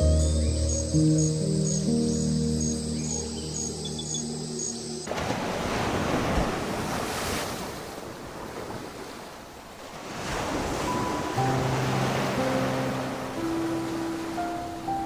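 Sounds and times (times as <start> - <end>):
soft music: 0.0 - 5.1, 10.8 - 15.0
ocean waves washing in: 5.1 - 15.0.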